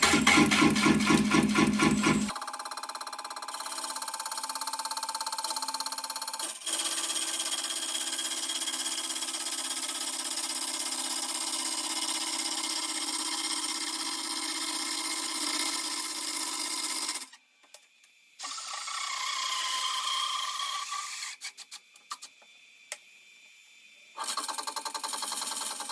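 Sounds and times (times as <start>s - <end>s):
lathe cutting wood: 0.0s - 2.3s
steady machine hum: 0.0s - 2.3s
machine running: 0.0s - 2.4s.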